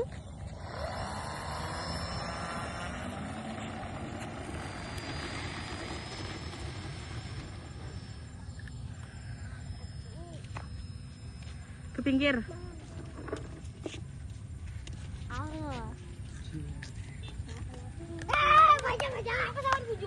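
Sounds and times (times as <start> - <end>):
model airplane motor whining: 0.0 - 16.0.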